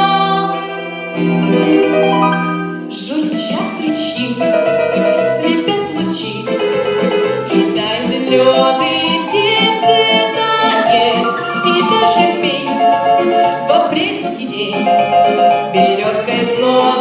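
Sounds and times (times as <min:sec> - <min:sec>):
instrumental accompaniment music: 0:00.0 - 0:17.0.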